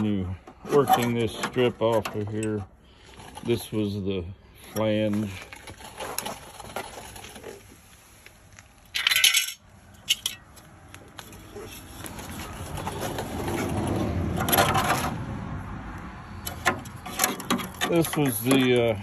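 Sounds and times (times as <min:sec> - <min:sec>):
metallic clicks and clinks: 0:09.0 - 0:10.5
harsh metal scrape: 0:11.4 - 0:15.3.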